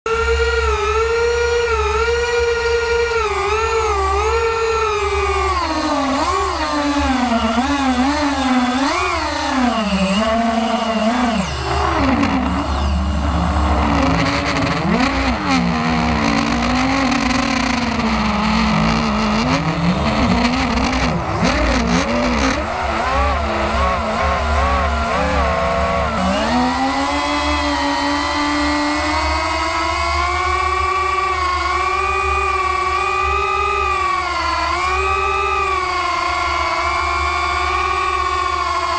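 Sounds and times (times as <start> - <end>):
model airplane engine: 0.1 - 38.9.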